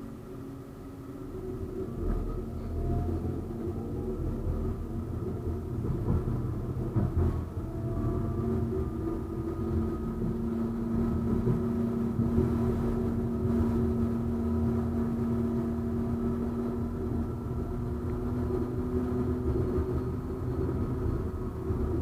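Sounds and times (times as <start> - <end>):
tram wheels rumbling on rail: 0.0 - 22.0.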